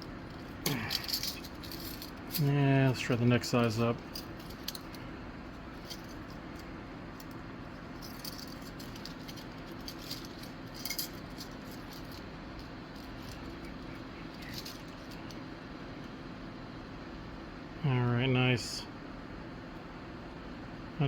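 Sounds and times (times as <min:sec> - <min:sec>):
metal wires clicking and jingling: 0:00.0 - 0:15.6
steady low hum: 0:00.0 - 0:21.0.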